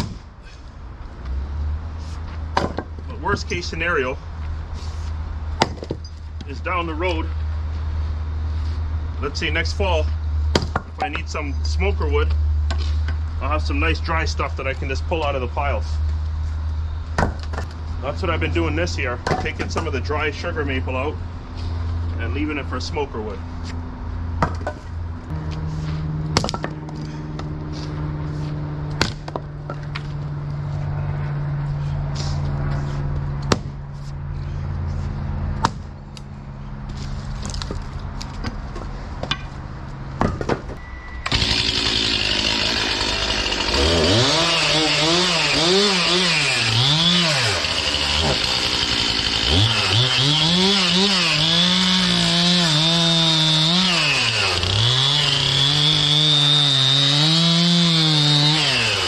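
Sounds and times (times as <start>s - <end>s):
low engine hum: 0.0s - 41.7s
sharp knocks of wood: 2.5s - 3.0s, 5.6s - 6.0s, 10.5s - 11.0s, 17.2s - 17.7s, 28.9s - 30.1s, 33.4s - 33.8s
chainsaw cutting wood: 41.2s - 59.0s.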